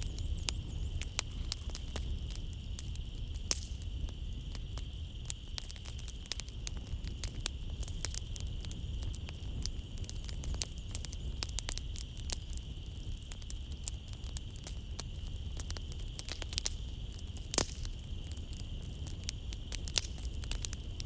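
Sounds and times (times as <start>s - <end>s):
night insects trilling: 0.0s - 21.0s
wood fire crackling: 0.0s - 21.0s.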